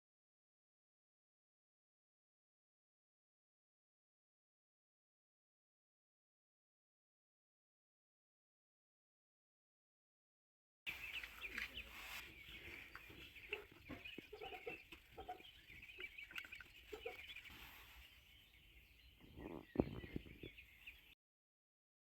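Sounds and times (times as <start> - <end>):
high bird chirping: 10.9 - 21.2
short low bird calls: 10.9 - 21.2.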